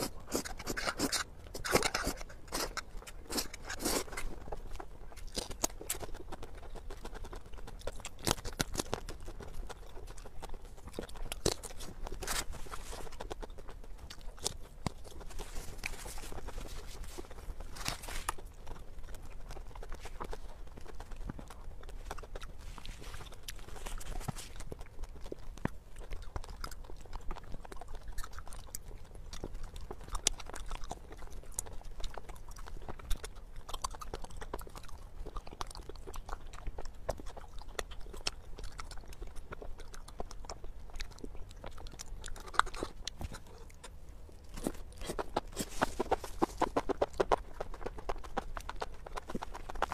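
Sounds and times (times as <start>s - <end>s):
slurping noodles: 0.0s - 4.4s
person chewing: 0.0s - 49.9s.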